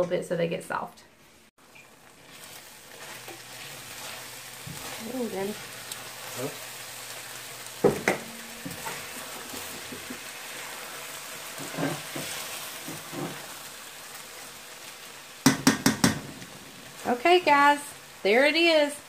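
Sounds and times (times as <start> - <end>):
food sizzling in a skillet: 1.6 - 19.0
spatula scraping a pan: 2.3 - 6.6, 8.2 - 10.7, 11.5 - 13.6.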